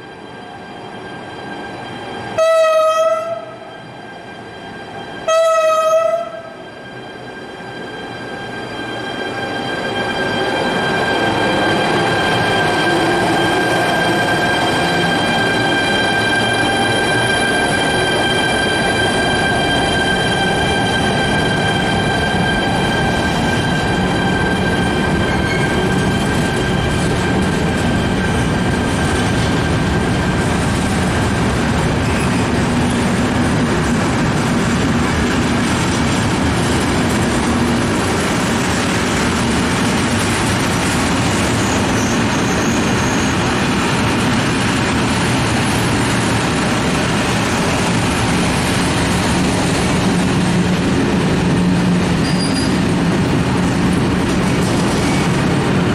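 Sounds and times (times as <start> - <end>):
freight train wheels on rails: 0.0 - 55.9
high wheel squeal: 6.5 - 30.1, 38.2 - 44.0, 52.2 - 52.9.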